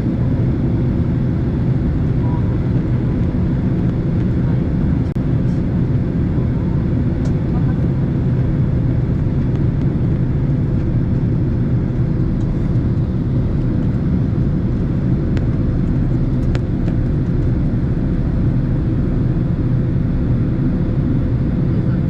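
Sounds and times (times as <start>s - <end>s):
constant hum tone: 0.0s - 22.0s
jet engines roaring in cabin: 0.0s - 22.0s.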